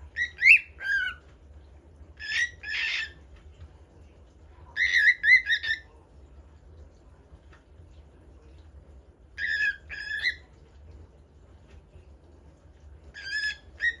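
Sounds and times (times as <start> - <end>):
bird whistling song: 0.2 - 1.2, 2.2 - 3.2, 4.8 - 5.9, 9.4 - 10.5, 13.2 - 14.0.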